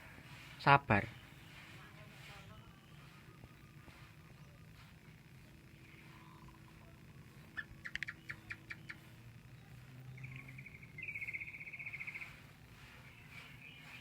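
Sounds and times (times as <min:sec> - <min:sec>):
high bird chirps: 0:05.8 - 0:14.0
fast high bird trill: 0:10.2 - 0:14.0.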